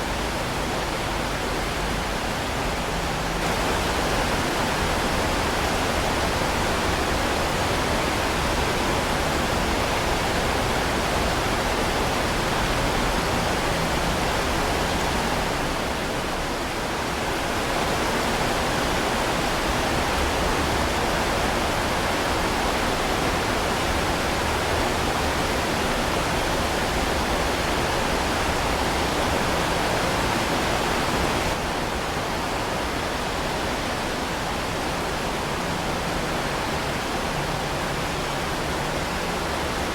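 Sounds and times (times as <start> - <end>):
heavy rain falling: 0.1 - 39.9.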